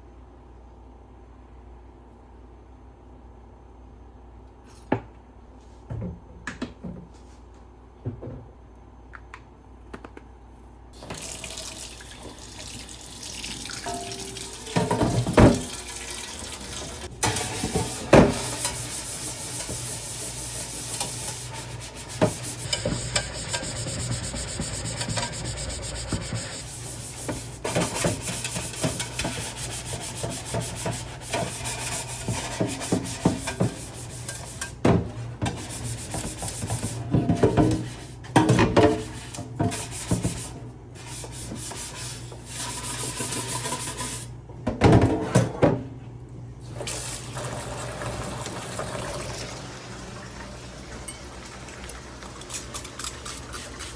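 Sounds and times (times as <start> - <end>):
tap water running into sink: 11.0 - 18.9, 46.7 - 53.9.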